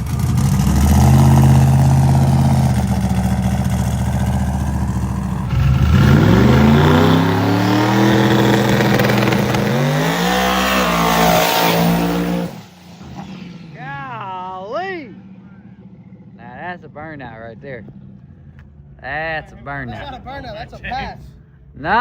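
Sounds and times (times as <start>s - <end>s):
drag car engine revving: 0.0s - 14.5s.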